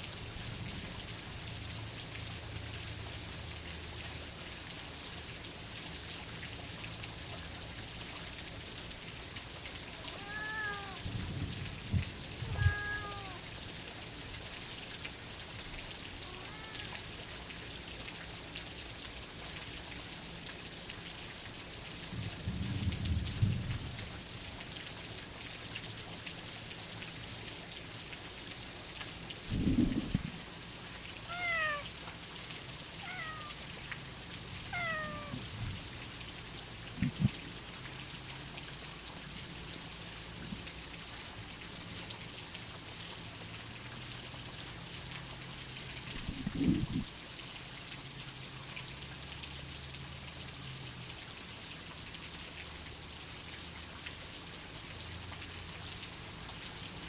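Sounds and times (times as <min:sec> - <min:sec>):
steady rain: 0:00.0 - 0:57.0
cat meowing: 0:10.0 - 0:11.1, 0:12.3 - 0:13.5, 0:16.2 - 0:17.1, 0:31.3 - 0:31.9, 0:33.0 - 0:33.7, 0:34.6 - 0:35.5
low thunder rumbles: 0:29.5 - 0:30.4.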